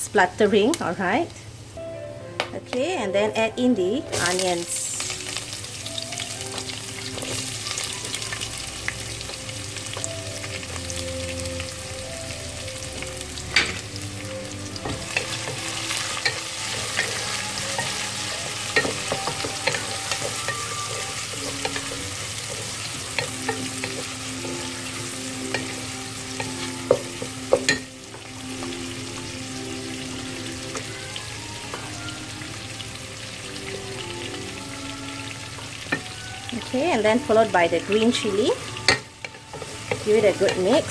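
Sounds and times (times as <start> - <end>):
onions sizzling in hot oil: 0.0 - 40.9
spoon knocking against pot: 26.4 - 28.8.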